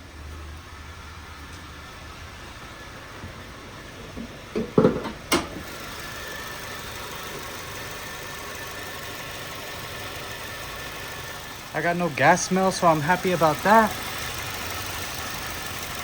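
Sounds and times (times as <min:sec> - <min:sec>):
car engine idling: 0:00.0 - 0:16.0
short knocks: 0:04.2 - 0:05.6.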